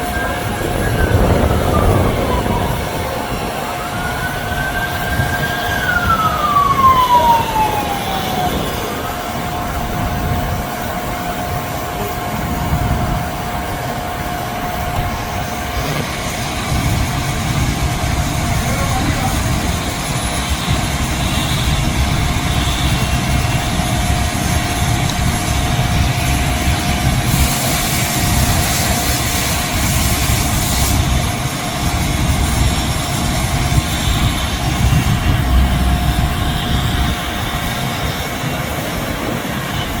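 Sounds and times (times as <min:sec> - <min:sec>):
car wash machinery whine: 0:00.0 - 0:40.0
burst of hiss: 0:27.2 - 0:31.2
low rumble: 0:33.8 - 0:37.9.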